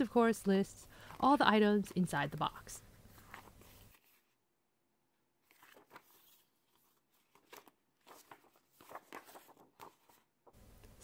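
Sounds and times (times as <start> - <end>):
paper card rustling and clicking: 5.4 - 11.0.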